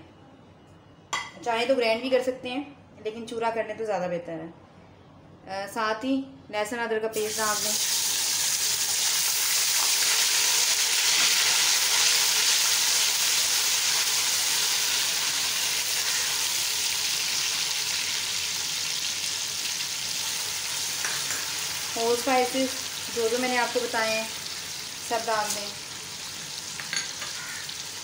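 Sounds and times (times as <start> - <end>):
paste sizzling in hot oil: 7.2 - 28.0.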